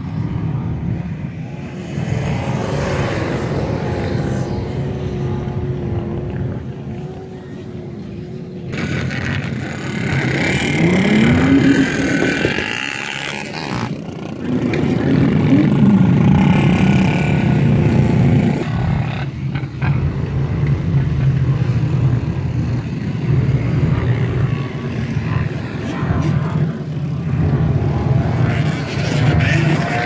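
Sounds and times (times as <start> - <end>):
drone of many engines: 0.0 - 30.0
engines revving: 0.0 - 30.0.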